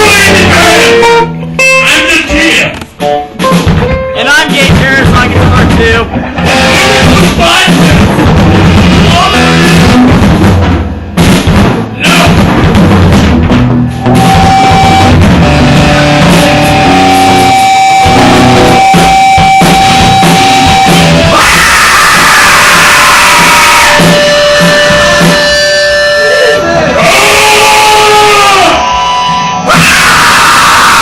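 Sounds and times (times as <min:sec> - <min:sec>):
bass guitar: 0:00.0 - 0:31.0
drum kit: 0:00.0 - 0:31.0
electric guitar: 0:06.0 - 0:10.6, 0:12.3 - 0:31.0.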